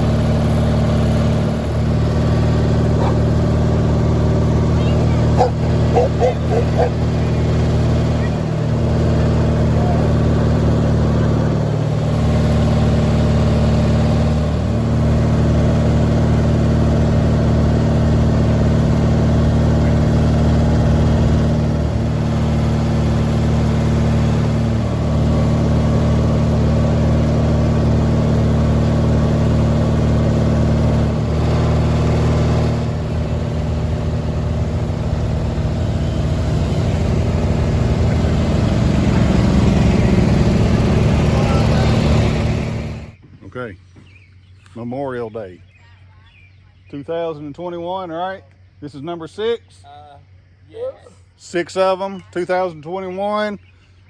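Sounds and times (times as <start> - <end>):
garden tractor engine running: 0.0 - 43.2.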